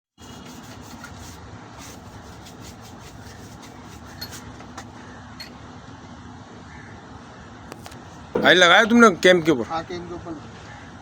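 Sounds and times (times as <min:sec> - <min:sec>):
low workshop hum: 0:00.2 - 0:09.7
light metallic clinks: 0:05.4 - 0:05.6.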